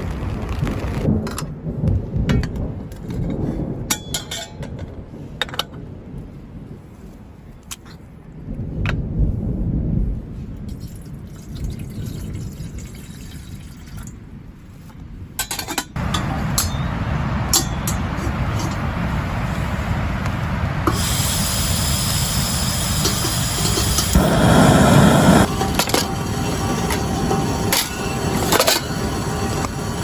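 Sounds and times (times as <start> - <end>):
low wind rumble: 0.0 - 30.0
rain: 0.0 - 30.0
high hiss: 20.8 - 30.0.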